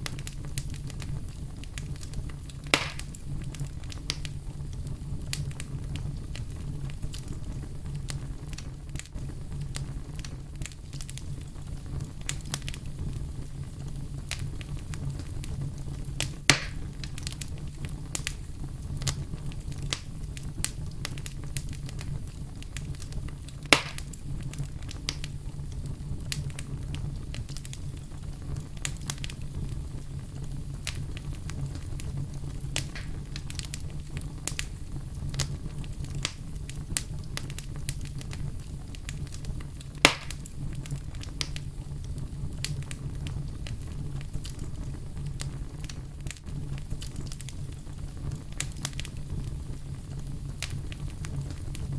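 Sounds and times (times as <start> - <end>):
fireplace fire crackling: 0.0 - 51.9
sharp loud fire pops: 2.6 - 3.2, 16.2 - 17.0, 23.6 - 24.2, 32.8 - 33.8, 40.0 - 40.5.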